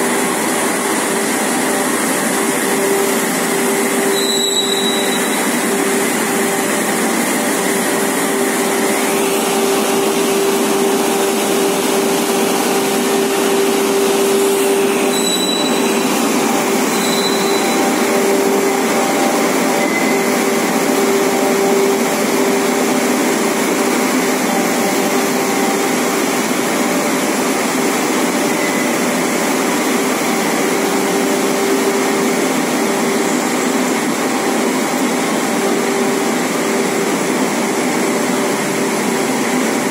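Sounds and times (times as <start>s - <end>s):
constant machine hum: 0.0s - 39.9s
production line machinery whirring: 0.0s - 39.9s.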